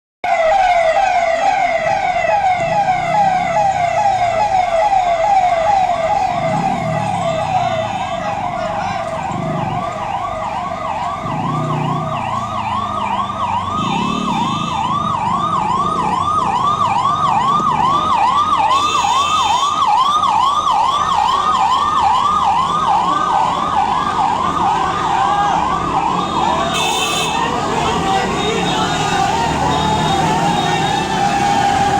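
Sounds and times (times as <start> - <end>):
electronic siren yelping: 0.2 - 31.9.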